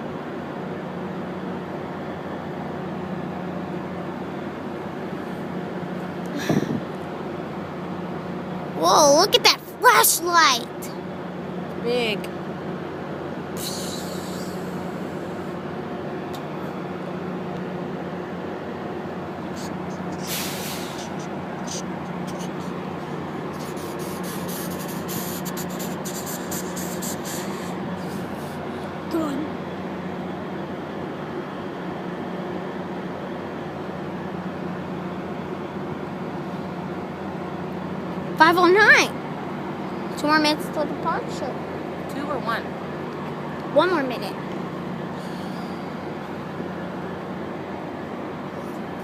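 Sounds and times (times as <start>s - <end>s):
diesel locomotive idling: 0.0s - 49.0s
short hiss: 19.6s - 22.7s, 23.6s - 28.2s.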